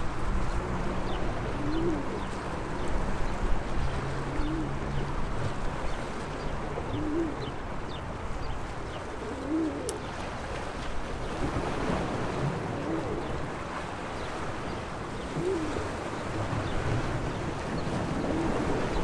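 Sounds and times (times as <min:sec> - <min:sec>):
sea waves washing on shore: 0:00.0 - 0:19.0
dove cooing: 0:01.4 - 0:02.5, 0:04.2 - 0:05.0, 0:06.8 - 0:07.6, 0:08.9 - 0:10.2, 0:12.6 - 0:13.5, 0:15.2 - 0:16.2, 0:18.2 - 0:19.0.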